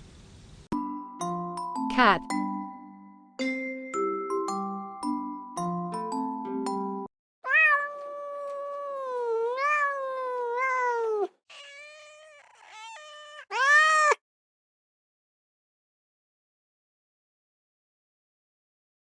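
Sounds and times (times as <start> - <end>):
cat meowing: 7.4 - 14.2.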